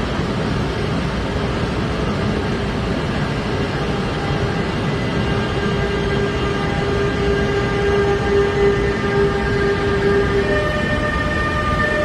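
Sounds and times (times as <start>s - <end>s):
train rushing rumble: 0.0s - 12.0s
whining tone: 4.0s - 12.0s.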